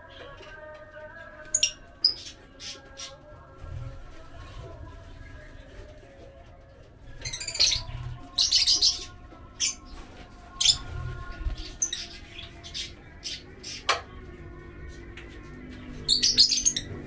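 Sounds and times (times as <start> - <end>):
lovebirds chirping: 1.4 - 3.2, 7.0 - 14.0, 16.0 - 17.0.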